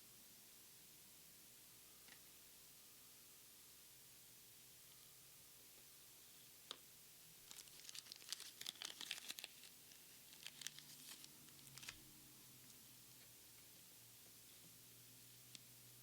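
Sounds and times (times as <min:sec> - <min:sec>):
foil wrapper tearing and crinkling: 0:07.4 - 0:12.0.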